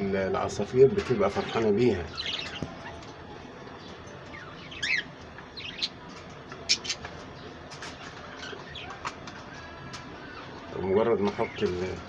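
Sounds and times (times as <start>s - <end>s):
budgerigars chirping: 1.3s - 3.0s, 4.3s - 6.0s, 6.6s - 9.0s.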